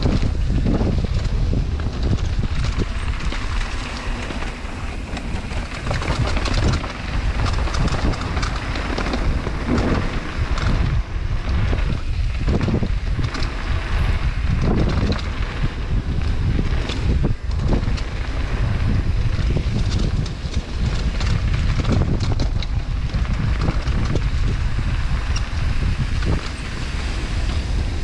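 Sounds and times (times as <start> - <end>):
bike rattles and knocks: 0.0 - 28.0
wind buffeting microphone: 0.0 - 28.0
tyres on dirt: 1.2 - 10.9.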